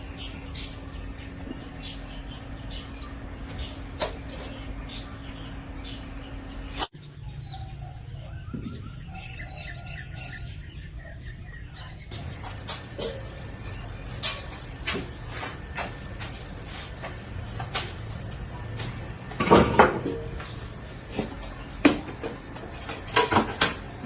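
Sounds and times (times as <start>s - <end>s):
low steady hum: 0.0s - 24.0s
small birds chirping: 0.0s - 24.0s
faint high whine: 12.1s - 24.0s.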